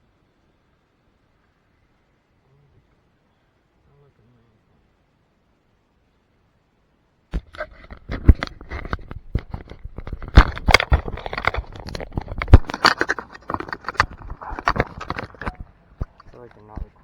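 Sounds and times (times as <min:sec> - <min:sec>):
camera handling noise: 0:07.4 - 0:17.0.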